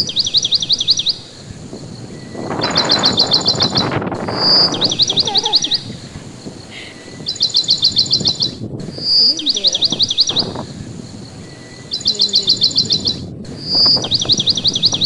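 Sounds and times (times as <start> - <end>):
low rumble of wind: 0.0 - 15.0
songbird singing: 0.0 - 15.0.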